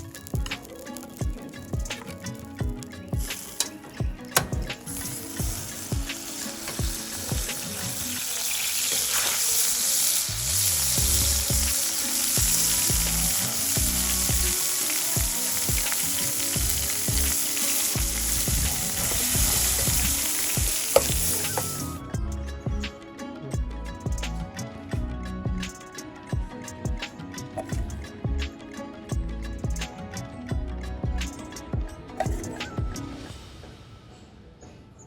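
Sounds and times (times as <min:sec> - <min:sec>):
fish sizzling in hot fat: 0:03.1 - 0:22.0.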